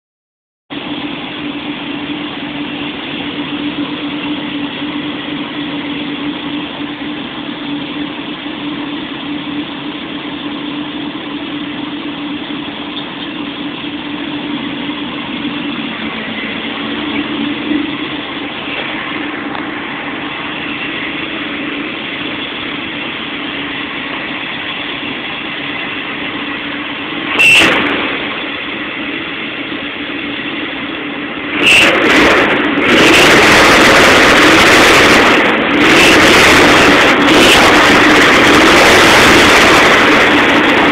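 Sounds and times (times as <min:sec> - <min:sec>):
car engine idling: 0:00.7 - 0:40.9
loud burst of noise: 0:14.0 - 0:40.9.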